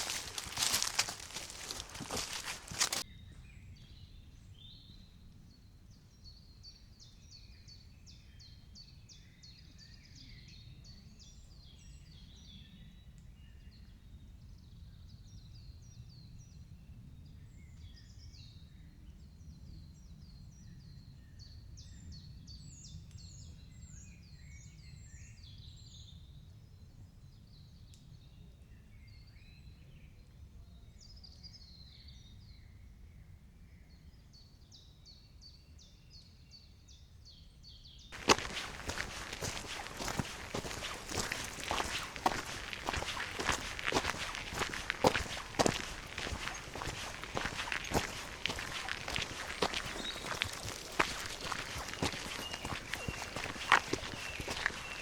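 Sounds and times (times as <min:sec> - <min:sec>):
songbirds singing and chirping: 0:00.0 - 0:03.0, 0:37.3 - 0:55.0.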